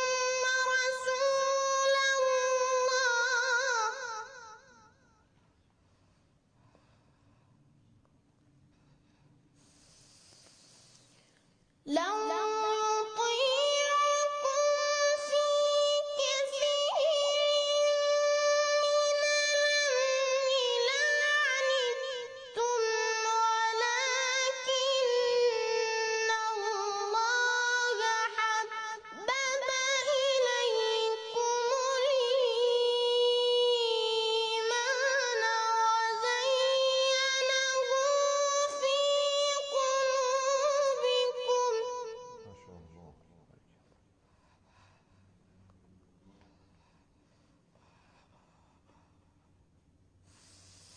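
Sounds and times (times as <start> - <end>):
person breathing: 5.8 - 7.9, 8.6 - 11.6, 43.9 - 49.6, 50.2 - 50.9.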